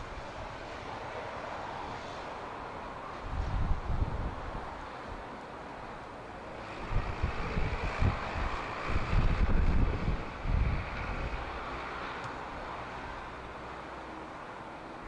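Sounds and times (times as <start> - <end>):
wind buffeting microphone: 3.1 - 4.8, 6.7 - 13.3.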